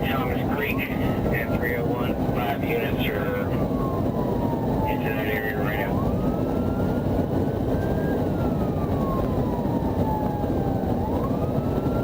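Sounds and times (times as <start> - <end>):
police siren wailing: 0.0 - 12.0
vehicle engine and road noise: 0.0 - 12.0.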